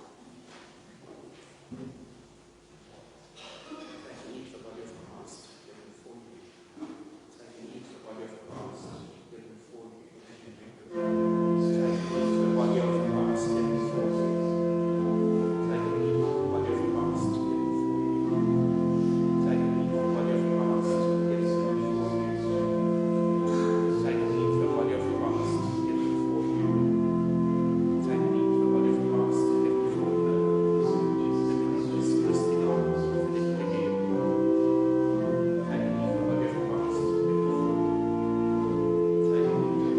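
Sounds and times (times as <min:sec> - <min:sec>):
organ-like keyboard chords: 0:10.8 - 0:39.9.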